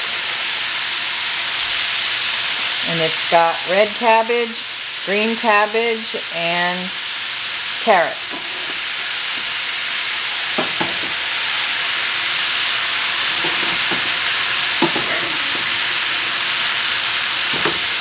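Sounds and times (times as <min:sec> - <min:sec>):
vegetables sizzling in pan: 0:00.0 - 0:18.0
wooden spatula scraping pan: 0:08.3 - 0:09.0, 0:13.2 - 0:16.7.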